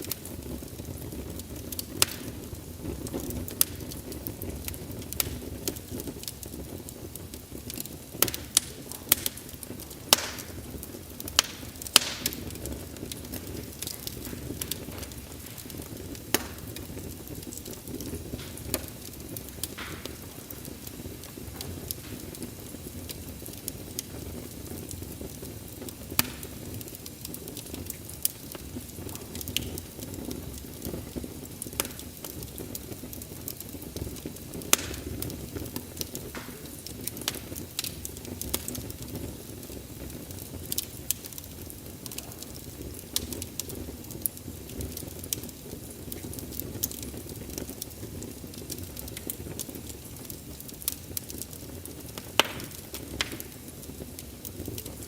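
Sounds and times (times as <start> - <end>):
burning logs popping: 0.0 - 55.0
low rumble of flames: 0.0 - 55.0
wood fire crackling: 0.0 - 55.0.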